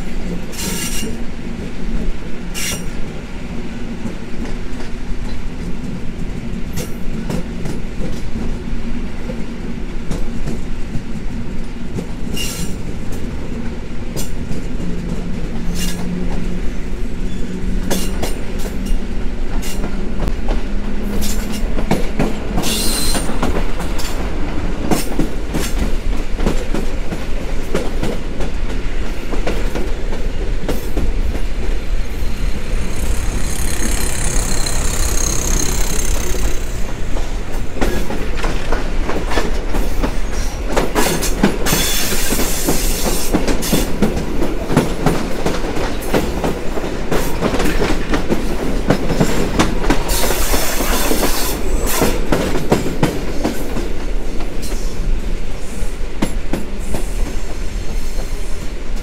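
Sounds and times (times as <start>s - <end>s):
train wheels rumbling on rails: 0.0s - 59.0s
wheels clicking over track joints: 32.5s - 40.1s.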